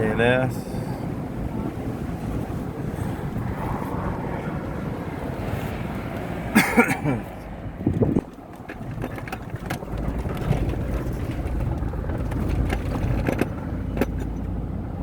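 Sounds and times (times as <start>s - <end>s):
car engine and road rumble: 0.0s - 15.0s
short knocks and rattles: 7.8s - 14.6s.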